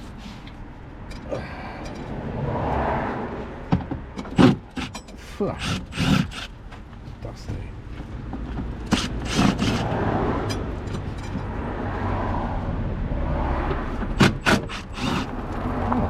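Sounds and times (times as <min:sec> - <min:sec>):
sharp knocks and clatters: 0:03.7 - 0:05.2.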